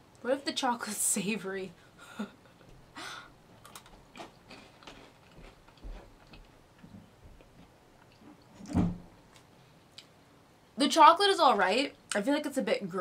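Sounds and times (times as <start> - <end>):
person chewing crunchy biscuit: 3.5 - 8.5.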